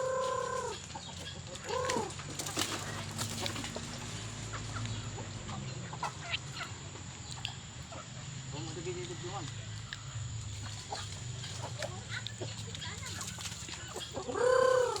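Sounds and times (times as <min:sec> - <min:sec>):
chickens clucking: 0:00.0 - 0:15.0
wings flapping: 0:00.1 - 0:04.6, 0:10.5 - 0:15.0.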